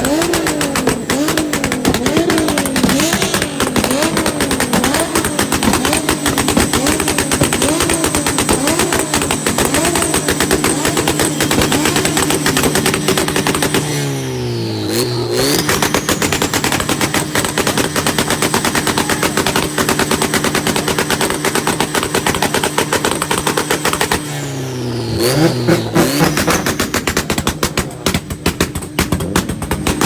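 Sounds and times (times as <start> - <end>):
car engine at rev limiter: 0.0 - 30.0.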